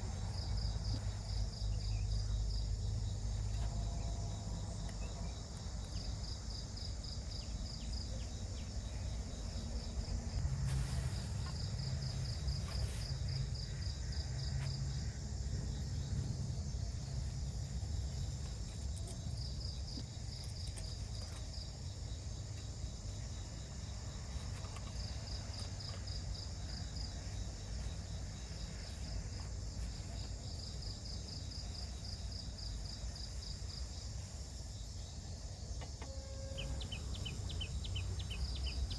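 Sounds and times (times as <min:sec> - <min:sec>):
low background rumble: 0:00.0 - 0:35.8, 0:36.4 - 0:38.9
insects chirping in trills: 0:00.0 - 0:38.9.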